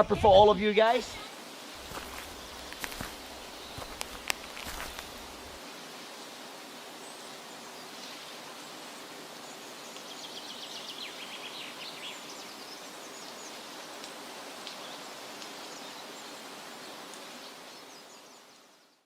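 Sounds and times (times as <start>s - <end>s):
birds calling: 0.0s - 5.6s
steady background hiss: 0.0s - 19.0s.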